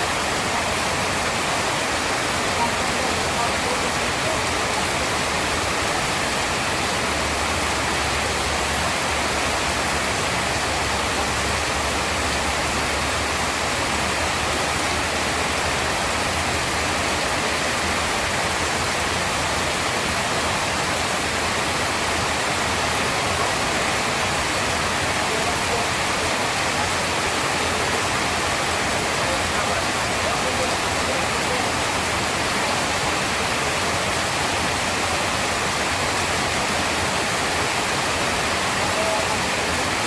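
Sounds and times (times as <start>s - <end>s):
heavy rain pouring: 0.0s - 40.0s.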